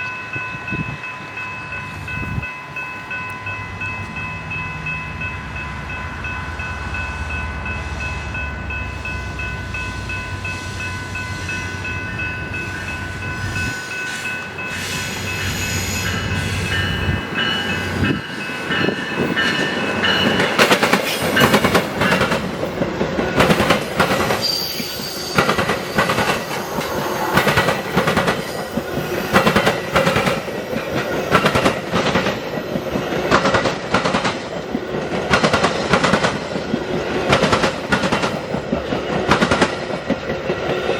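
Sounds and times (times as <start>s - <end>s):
steady high tone: 0.0s - 23.6s
train engine rumble: 0.0s - 40.9s
train wheels clattering over rail joints: 16.4s - 24.6s, 25.3s - 40.9s.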